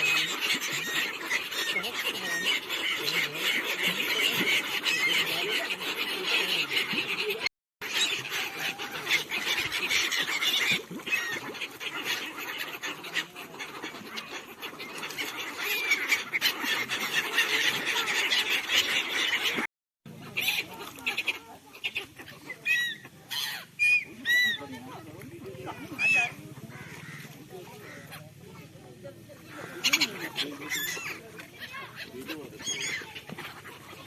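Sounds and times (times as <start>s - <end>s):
flock of birds chattering: 0.0s - 34.0s.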